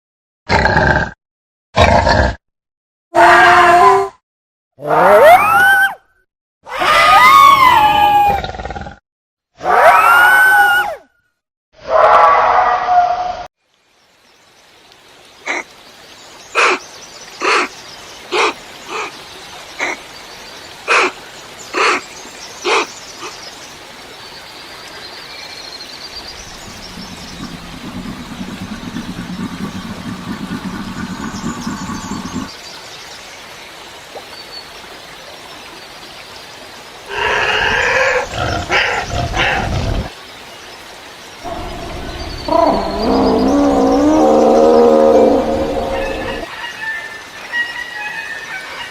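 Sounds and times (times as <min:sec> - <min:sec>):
loud rough animal outburst: 0:26.3 - 0:32.5, 0:37.1 - 0:40.1, 0:41.5 - 0:46.5
low growl-like sound: 0:26.3 - 0:32.5, 0:41.4 - 0:46.5.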